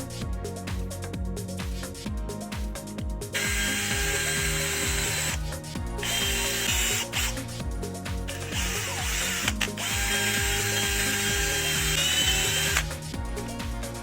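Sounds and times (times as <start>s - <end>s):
background music with low beat: 0.0s - 14.0s
mechanical tool clicking and running: 3.4s - 5.4s, 6.0s - 7.4s, 8.3s - 12.9s.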